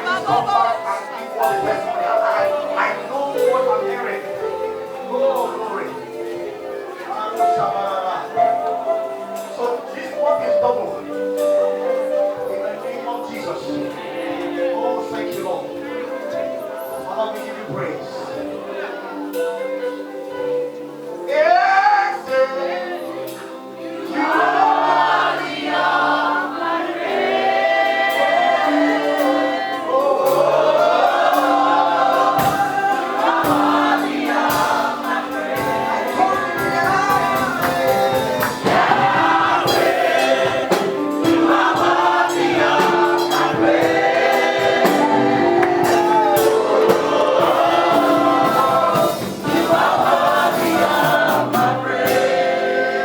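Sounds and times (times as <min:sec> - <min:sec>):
choir singing: 0:00.0 - 0:53.0
keyboard chords: 0:00.0 - 0:53.0
steady beat: 0:30.3 - 0:53.0.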